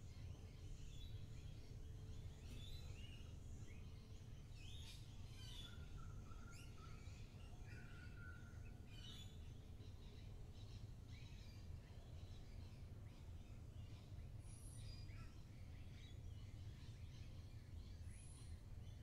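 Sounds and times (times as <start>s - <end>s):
faint birds chirping: 0.0s - 19.0s.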